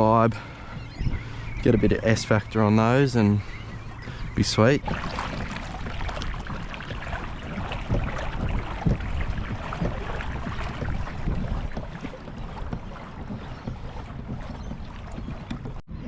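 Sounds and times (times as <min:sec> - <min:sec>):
water against kayak hull: 0:00.0 - 0:16.0
wind buffeting microphone: 0:00.0 - 0:16.0
gear knocks and thumps: 0:05.4 - 0:15.8.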